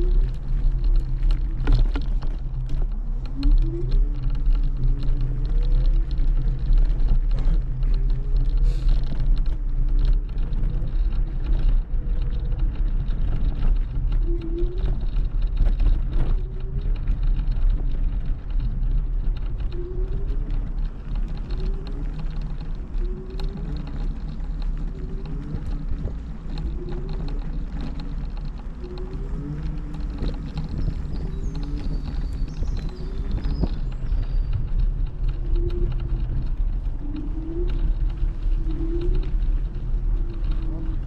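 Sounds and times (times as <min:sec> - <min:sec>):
scooter wheels and wind rumble: 0:00.0 - 0:41.0.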